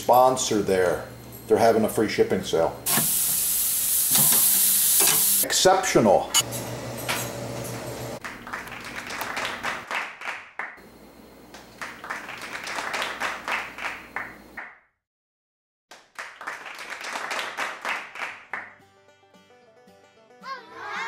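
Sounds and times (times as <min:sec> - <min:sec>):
hands clapping: 0:08.2 - 0:10.8, 0:11.5 - 0:14.8, 0:15.9 - 0:18.7.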